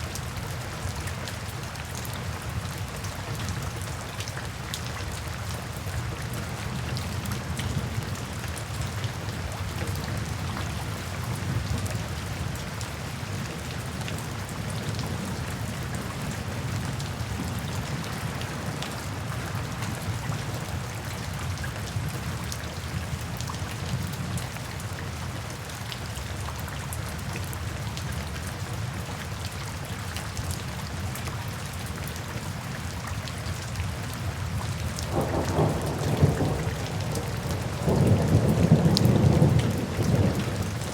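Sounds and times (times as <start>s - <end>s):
steady rain falling: 0.0s - 40.9s
low rumble of thunder: 35.1s - 40.9s.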